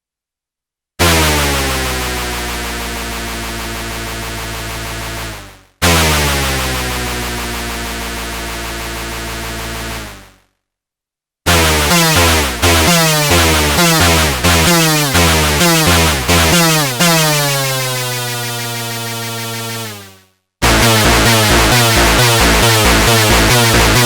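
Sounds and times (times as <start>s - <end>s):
fast repeated synthesizer notes: 1.0s - 10.2s, 11.5s - 24.0s
synthesizer held sliding notes: 11.5s - 19.9s, 20.6s - 24.0s.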